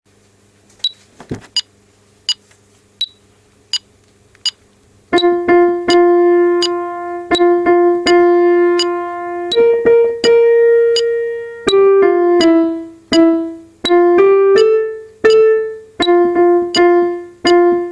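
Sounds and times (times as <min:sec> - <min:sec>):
piano playing: 0:05.1 - 0:17.9.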